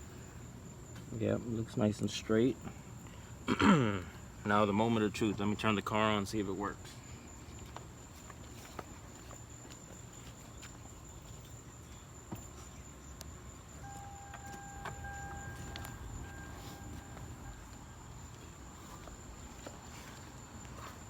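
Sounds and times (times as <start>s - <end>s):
steady low hum: 0.0s - 21.0s
electronic tone: 13.8s - 19.0s
thin high whine: 13.8s - 21.0s.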